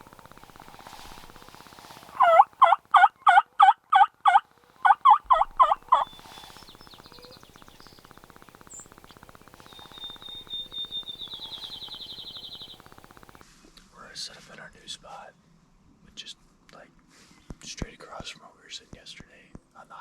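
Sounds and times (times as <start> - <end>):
turkey yelping: 1.0 - 7.4.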